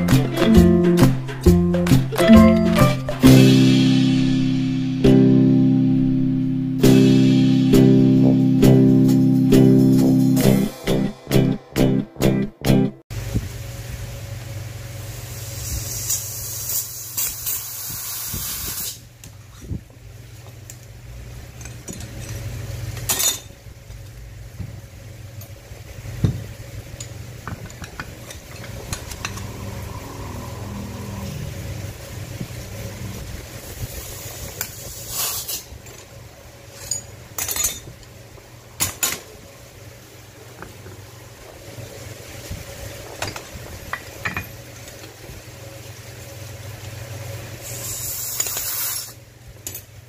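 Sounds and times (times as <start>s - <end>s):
low workshop hum: 13.1s - 50.0s
short hissing bursts: 15.2s - 19.1s, 33.4s - 35.8s, 47.6s - 49.3s.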